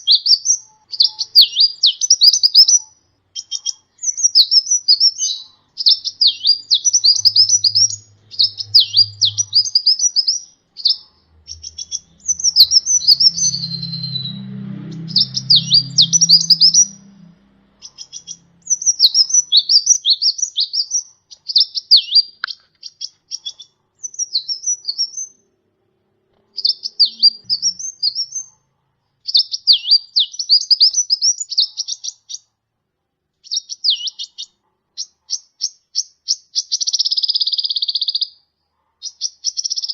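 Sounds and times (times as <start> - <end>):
faint low hum: 0.0 - 21.6, 23.3 - 29.3
sunbird chirping and trilling: 0.0 - 25.5, 26.5 - 28.6, 29.2 - 32.5, 33.4 - 38.4, 39.0 - 39.9.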